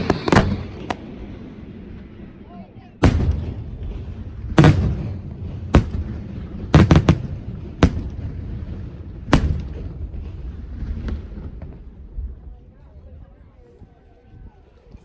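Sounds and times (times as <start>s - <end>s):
fireworks bursting with echo: 0.0s - 2.2s, 3.0s - 11.9s.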